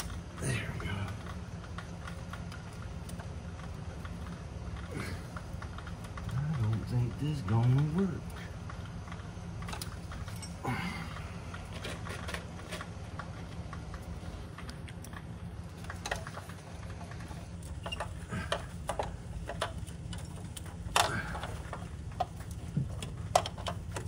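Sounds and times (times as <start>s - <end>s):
steady low hum: 0.0s - 24.0s
hand tools clicking on metal: 13.7s - 24.0s.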